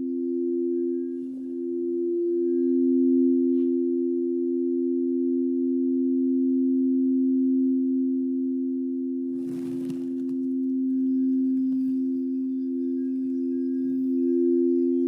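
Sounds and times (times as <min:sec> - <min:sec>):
singing bowls ringing: 0:00.0 - 0:03.9, 0:09.4 - 0:15.0.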